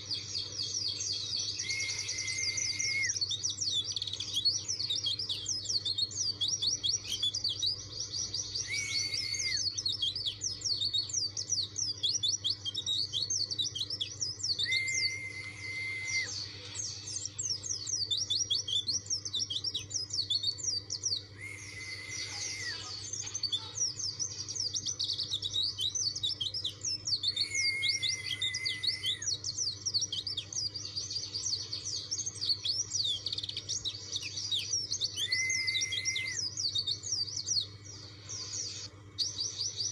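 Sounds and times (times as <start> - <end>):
bird twittering song: 0.0 - 39.9
faint steady hum: 0.0 - 39.9
held lower whistle: 1.6 - 3.2, 8.6 - 9.6, 14.6 - 16.4, 21.4 - 22.9, 27.4 - 29.2, 35.2 - 36.4.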